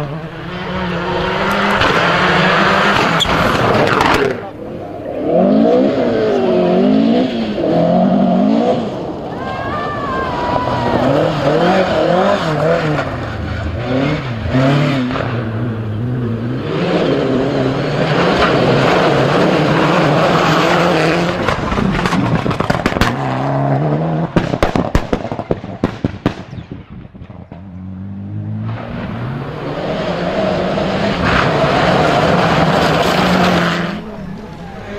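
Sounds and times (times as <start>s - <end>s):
rally car engine revving: 0.0s - 26.4s, 27.2s - 34.9s
exhaust backfire pops: 21.4s - 23.3s, 24.2s - 27.7s.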